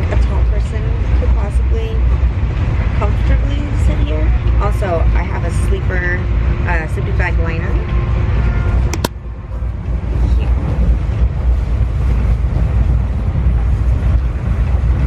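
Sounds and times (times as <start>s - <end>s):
train coach rumble: 0.0s - 15.0s
wind noise on microphone: 0.0s - 15.0s
sharp clicks: 8.9s - 9.2s.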